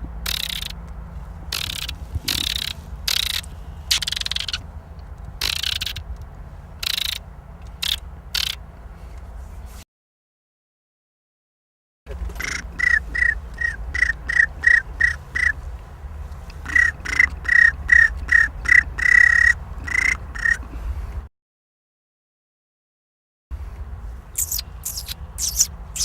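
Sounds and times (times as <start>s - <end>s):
person imitating goose honks: 12.4s - 15.6s.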